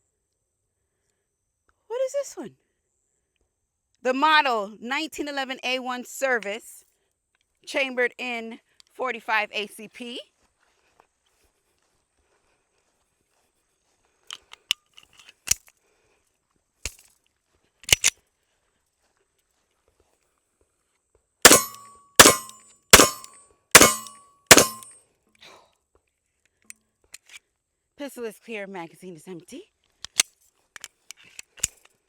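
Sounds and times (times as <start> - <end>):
pistol metallic clicks: 17.8 - 18.1, 21.5 - 24.9, 30.0 - 30.2, 31.4 - 31.8
pistol shots: 21.5 - 24.9.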